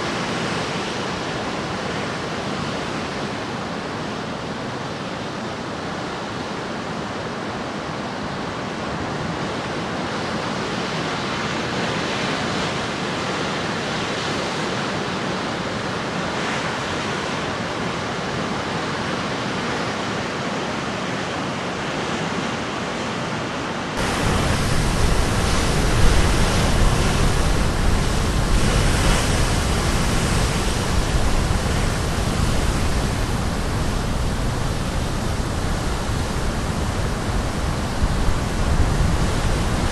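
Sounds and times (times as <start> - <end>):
surf breaking on rocky shore: 23.9 - 39.9.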